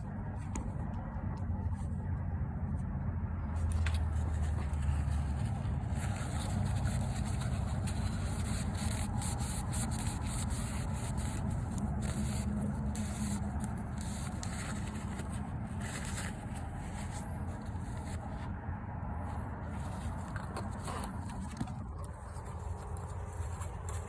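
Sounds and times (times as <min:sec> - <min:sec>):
cloth rubbing engine parts: 0:03.5 - 0:24.0.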